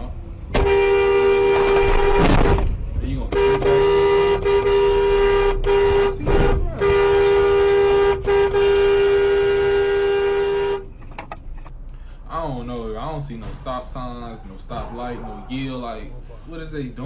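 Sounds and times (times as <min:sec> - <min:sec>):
car horn honking: 0:00.0 - 0:11.2.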